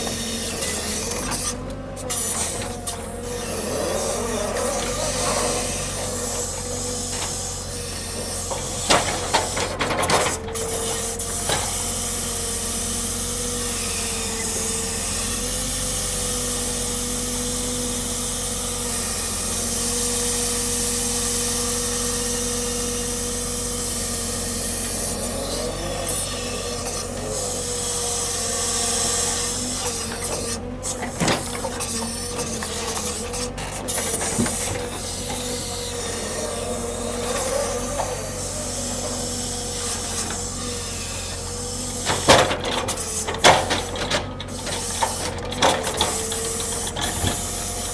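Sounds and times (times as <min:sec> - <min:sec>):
machinery whine: 0:22.5 - 0:47.9.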